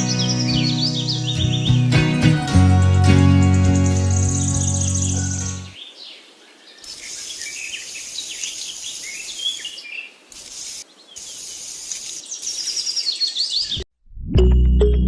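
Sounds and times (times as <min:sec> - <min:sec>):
birds chirping: 0:00.0 - 0:13.9
high insect trill: 0:06.8 - 0:13.0.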